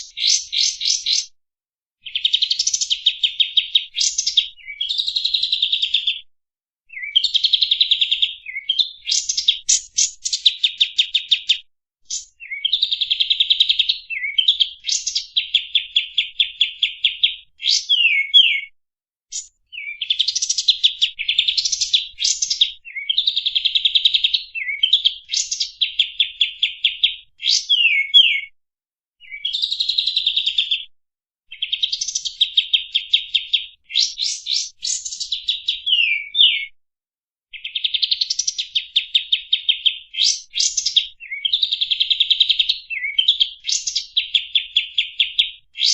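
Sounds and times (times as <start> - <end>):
bulbul singing trills: 0.0 - 1.3, 2.0 - 6.2, 6.9 - 18.7, 19.3 - 28.5.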